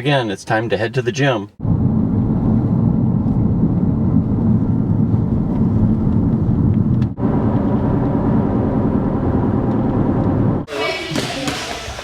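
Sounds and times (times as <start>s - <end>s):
car driving low rumble: 1.5s - 10.7s.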